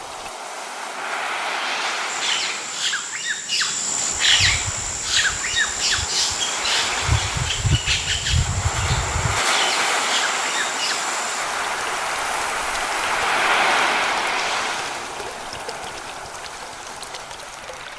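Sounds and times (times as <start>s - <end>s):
sea wave washing in: 11.2s - 17.9s.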